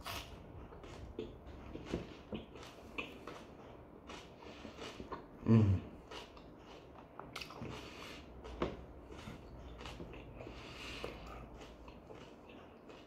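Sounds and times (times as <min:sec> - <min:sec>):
man chewing food: 0:00.0 - 0:13.0
short low vocal sound: 0:05.4 - 0:05.9.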